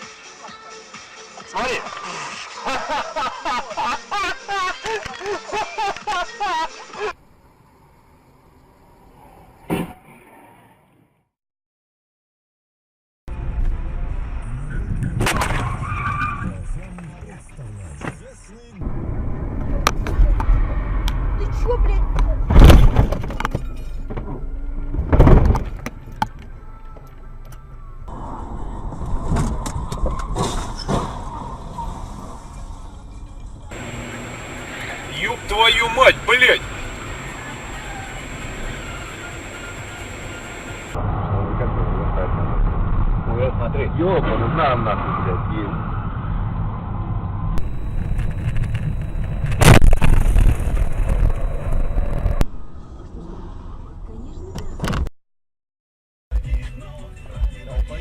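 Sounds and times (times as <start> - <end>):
car road and engine noise: 13.3 - 16.9, 18.8 - 31.7, 32.3 - 41.4, 45.2 - 54.9
loud car crash: 15.2 - 16.5, 22.4 - 25.8, 28.1 - 33.0, 49.4 - 52.2
car collision crash: 22.5 - 24.4, 25.0 - 25.9, 29.2 - 32.4
car running: 32.5 - 41.0, 45.8 - 54.4
thin steady whine: 33.7 - 41.0, 47.6 - 52.7.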